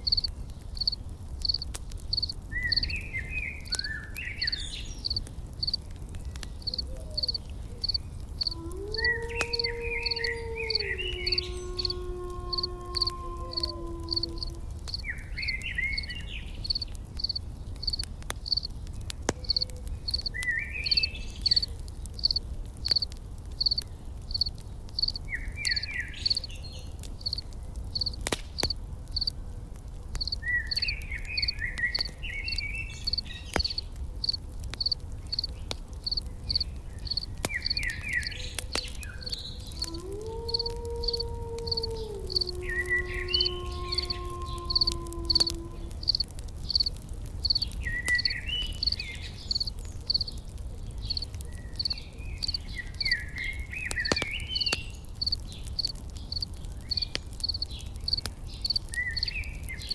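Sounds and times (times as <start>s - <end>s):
insect chirping: 0.0s - 2.9s, 5.0s - 5.8s, 6.6s - 15.0s, 16.7s - 18.7s, 19.5s - 26.4s, 30.2s - 32.1s, 33.1s - 38.0s, 39.8s - 50.3s, 55.2s - 59.3s
campfire crackling: 0.0s - 59.9s
bird song phrases: 2.5s - 5.2s, 6.2s - 17.0s, 18.9s - 22.4s, 25.0s - 27.0s, 30.3s - 33.8s, 35.3s - 46.0s, 47.6s - 59.9s.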